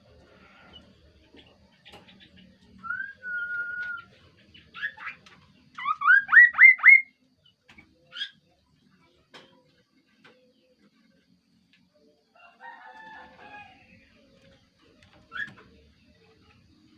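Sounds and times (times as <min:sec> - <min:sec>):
bird calling with whistles: 0:05.8 - 0:07.1.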